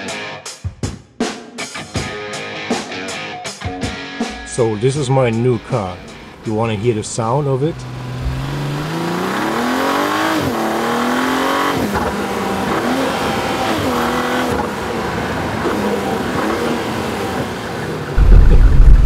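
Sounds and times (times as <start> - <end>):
car engine accelerating through gears: 7.5 - 19.0.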